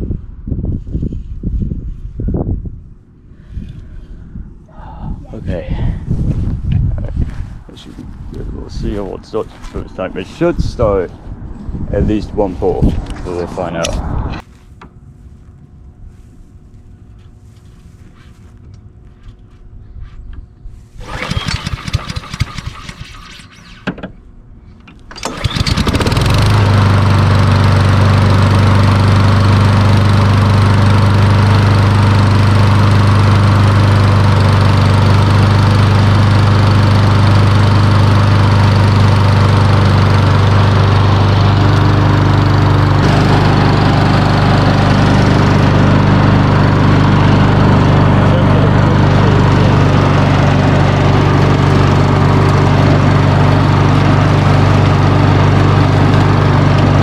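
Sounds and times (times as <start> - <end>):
lawn mower engine starting and running: 20.9 - 24.2, 24.8 - 57.0.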